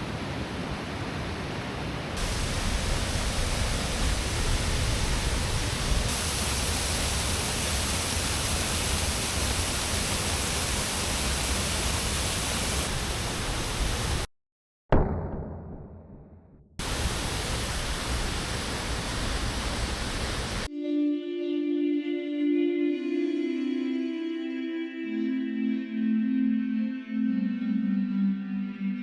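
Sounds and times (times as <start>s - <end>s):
waterfall rushing: 2.2s - 14.3s, 16.8s - 20.7s.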